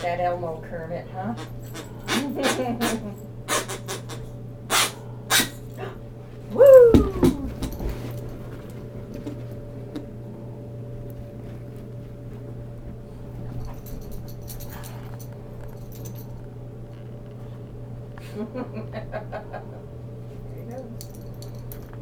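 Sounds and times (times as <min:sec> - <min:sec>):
steady low hum: 0:00.0 - 0:22.0
collar tags jingling: 0:13.4 - 0:16.4, 0:20.7 - 0:22.0.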